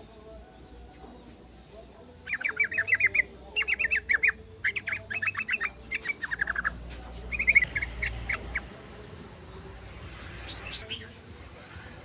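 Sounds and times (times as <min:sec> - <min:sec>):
bulbul chattering song: 0:01.6 - 0:12.0.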